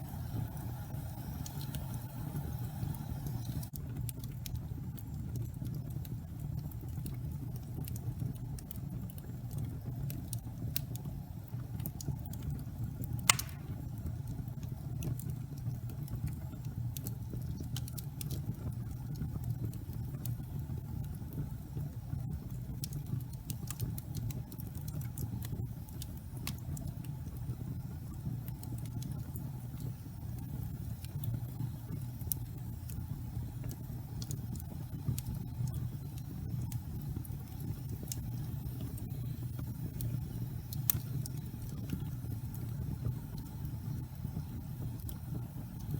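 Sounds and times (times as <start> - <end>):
low rumble of flames: 0.0 - 45.9
small fire crackles: 0.0 - 45.9
sharp loud fire pop: 13.3 - 13.8.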